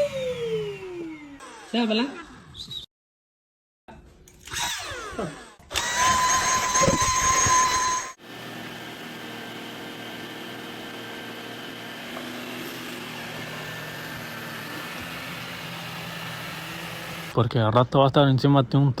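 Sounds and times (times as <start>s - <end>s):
electric motor whining: 4.4s - 17.4s.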